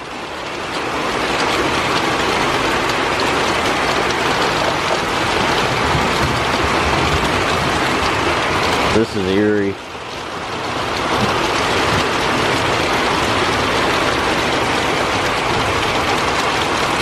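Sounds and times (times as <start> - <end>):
very heavy rain pouring: 0.0 - 17.0.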